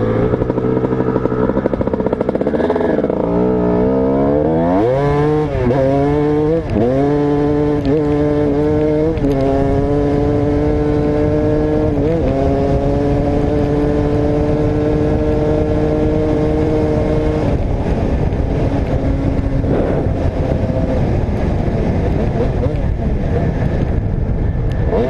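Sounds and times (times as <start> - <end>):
dirt bike engine revving: 0.0 - 23.6.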